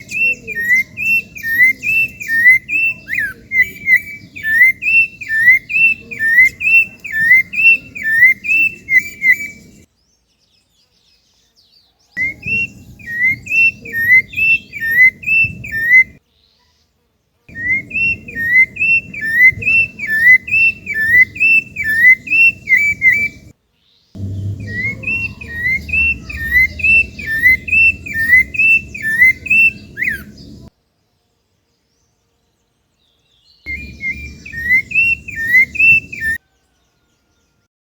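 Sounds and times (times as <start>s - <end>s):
faint high chirps: 0.0s - 9.9s, 12.0s - 16.9s, 17.5s - 23.5s, 24.2s - 30.7s, 33.7s - 37.6s
thrush singing whistled phrase: 0.0s - 9.9s, 12.2s - 16.2s, 17.5s - 23.5s, 24.2s - 30.7s, 33.7s - 36.4s
low rumble: 24.2s - 29.1s.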